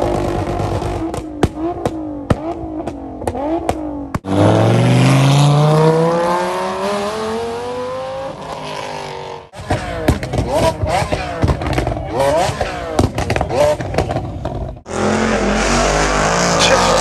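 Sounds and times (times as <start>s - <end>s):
exhaust cracks: 0.0s - 4.4s
car accelerating hard: 0.0s - 17.0s
car engines revving: 0.0s - 17.0s.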